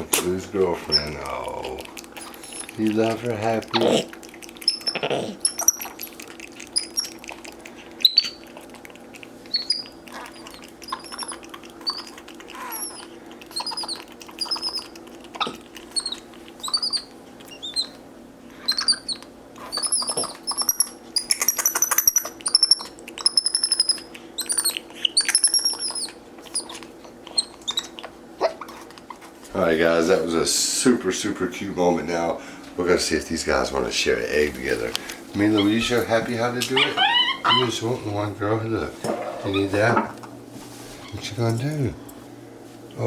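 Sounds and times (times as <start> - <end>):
steady low hum: 0.0 - 43.0
monkeys chirping: 0.7 - 18.0, 18.6 - 29.3, 34.6 - 38.2, 39.3 - 40.0.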